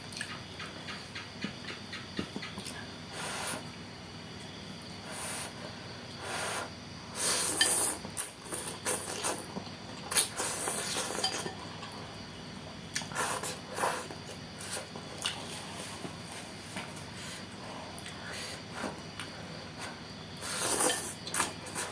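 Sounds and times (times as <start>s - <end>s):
cutlery clinking on bowl: 11.2s - 11.6s.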